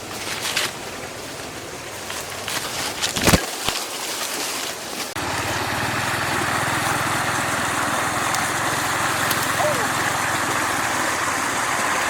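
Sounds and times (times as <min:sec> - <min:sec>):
small engine running: 0:05.2 - 0:12.0.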